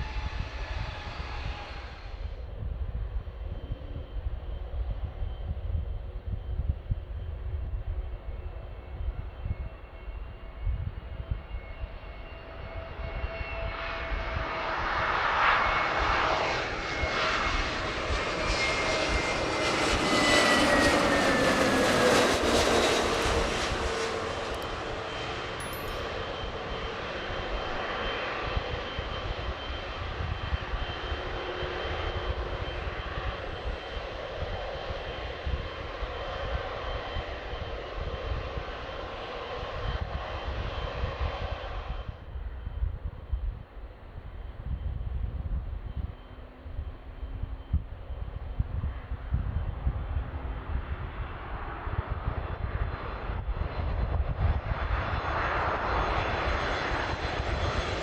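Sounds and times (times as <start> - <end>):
jet airliner engine roar: 0.0 - 58.0.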